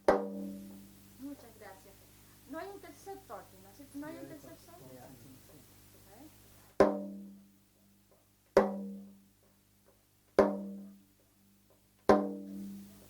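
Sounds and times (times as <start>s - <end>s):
small hand drum strokes: 0.0s - 1.0s, 5.4s - 7.4s, 8.1s - 13.0s.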